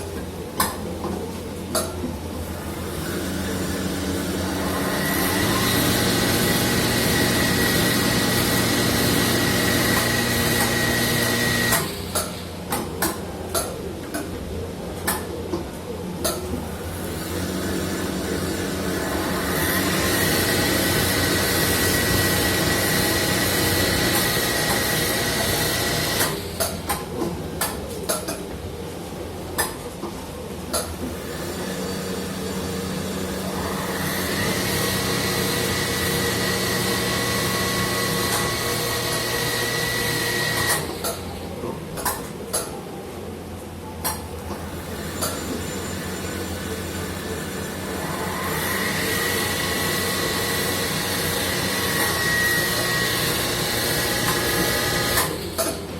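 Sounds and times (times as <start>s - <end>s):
machine high-pitched whine: 2.4s - 12.7s, 16.6s - 26.8s, 31.1s - 41.6s, 44.5s - 55.9s.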